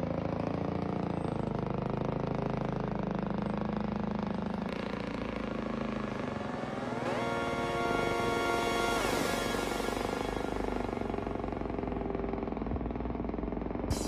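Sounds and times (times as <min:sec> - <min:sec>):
truck engine humming: 0:04.6 - 0:14.0.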